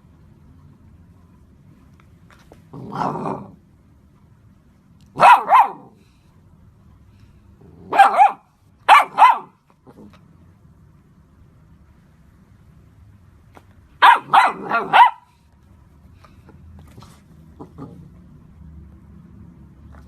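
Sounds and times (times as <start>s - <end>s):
dog growling: 2.7s - 3.6s, 17.0s - 18.3s
dog barking: 5.1s - 6.0s, 7.9s - 9.6s, 14.0s - 15.4s.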